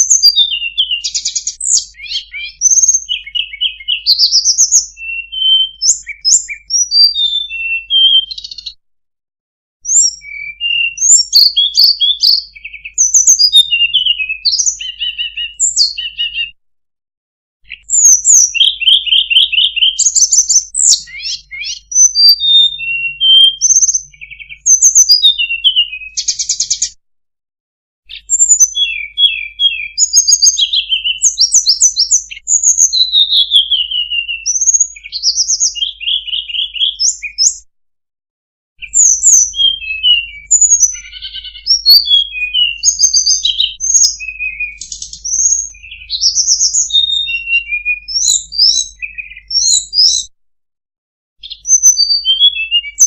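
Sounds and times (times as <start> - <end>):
songbird singing chirps and trills: 0.0 - 8.8, 9.8 - 16.6, 17.7 - 27.0, 28.1 - 37.6, 38.8 - 50.3, 51.4 - 53.0.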